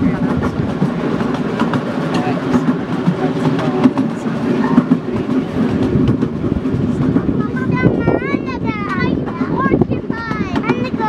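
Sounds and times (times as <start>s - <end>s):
miniature train rumbling on track: 0.0s - 11.0s.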